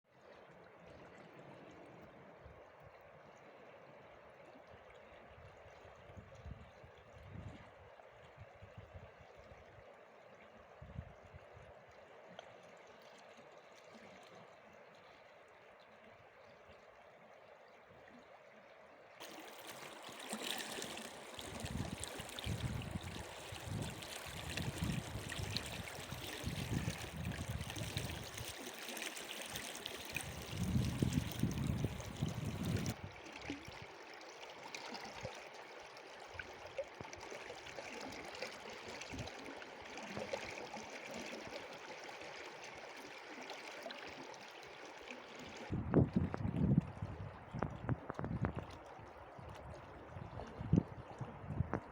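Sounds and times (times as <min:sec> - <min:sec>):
stream water rushing: 0:19.2 - 0:45.7.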